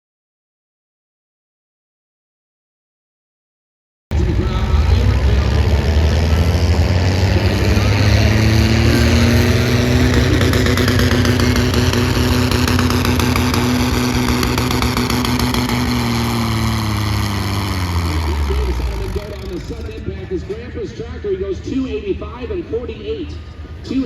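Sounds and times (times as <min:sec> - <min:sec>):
tractor engine under heavy load: 0:04.1 - 0:21.2.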